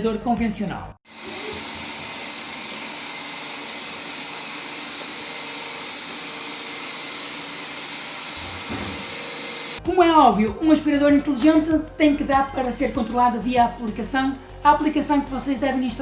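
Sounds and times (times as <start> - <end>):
robot vacuum cleaner hissing: 1.1 - 9.8.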